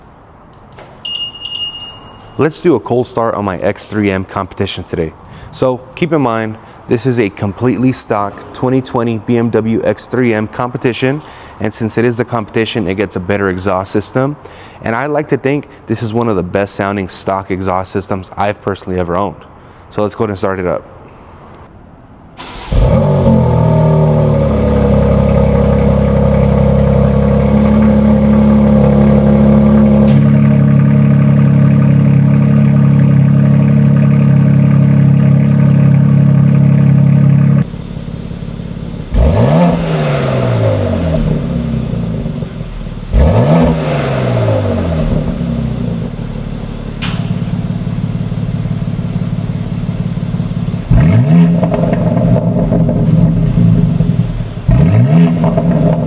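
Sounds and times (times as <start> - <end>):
car engine idling: 3.5 - 11.5, 22.4 - 56.0
car engine revving: 22.4 - 56.0
car engine starting: 22.4 - 56.0.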